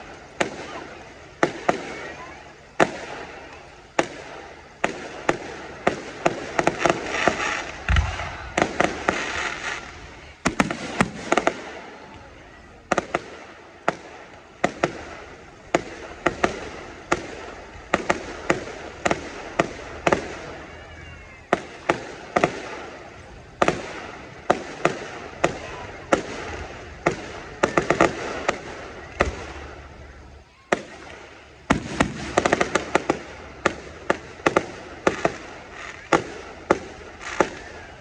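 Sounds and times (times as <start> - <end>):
fireworks crackle: 0.0 - 38.0
firework shells bursting: 2.7 - 20.8.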